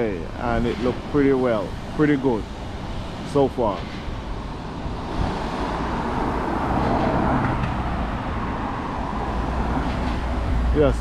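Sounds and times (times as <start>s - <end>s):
low rumble of traffic: 0.0s - 11.0s
car passing close by: 4.7s - 10.8s.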